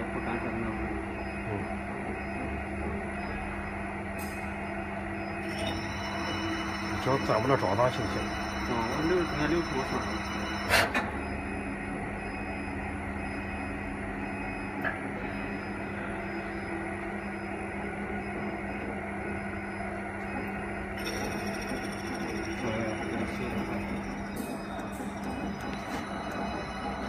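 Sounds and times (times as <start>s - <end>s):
lathe machine hum: 5.5s - 10.7s.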